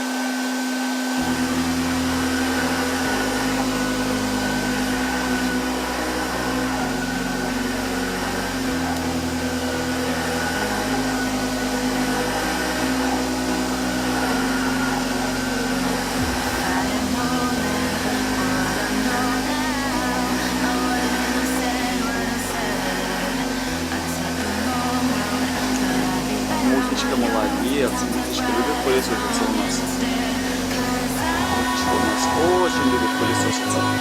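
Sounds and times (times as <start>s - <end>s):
vacuum cleaner running: 0.0s - 34.0s
electronic music with bass line: 1.2s - 34.0s.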